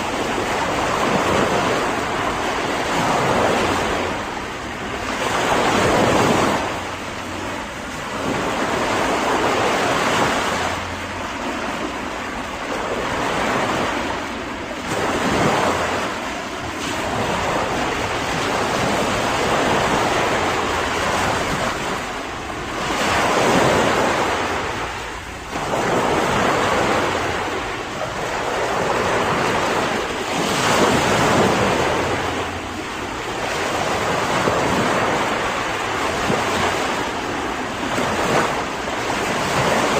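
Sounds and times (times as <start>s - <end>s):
ocean waves breaking: 0.0s - 39.9s
wind noise: 0.0s - 39.9s.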